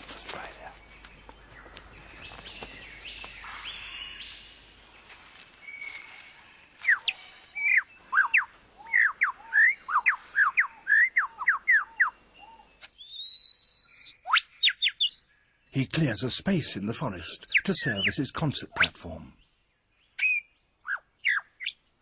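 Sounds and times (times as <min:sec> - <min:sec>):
faint bird whistles: 0:06.8 - 0:15.2, 0:20.2 - 0:21.8
lyrebird singing whistled notes: 0:06.8 - 0:15.3, 0:20.2 - 0:21.8.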